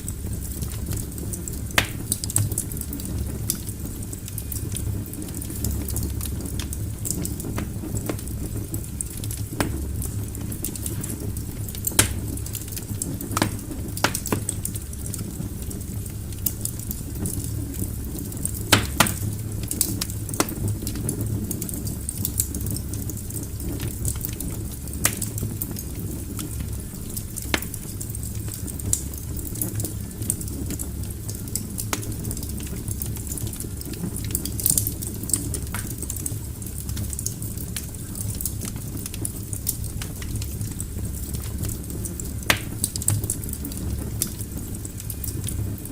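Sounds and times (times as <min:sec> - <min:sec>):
logs crackling in fireplace: 0:00.0 - 0:45.9
low fire rumble: 0:00.0 - 0:45.9
sharp fire pops: 0:00.2 - 0:15.8, 0:16.4 - 0:21.0, 0:25.0 - 0:25.8, 0:26.4 - 0:28.0, 0:34.6 - 0:36.2, 0:42.4 - 0:44.4.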